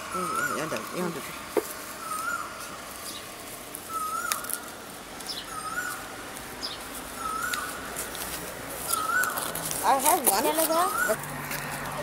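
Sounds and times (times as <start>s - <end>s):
high bird chirps: 0.1s - 0.9s, 2.0s - 7.9s, 8.8s - 9.5s.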